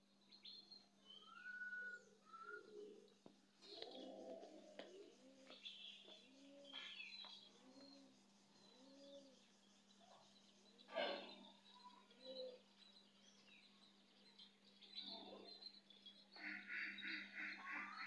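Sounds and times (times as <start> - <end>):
low bird calls: 1.0 - 9.4, 10.8 - 12.7.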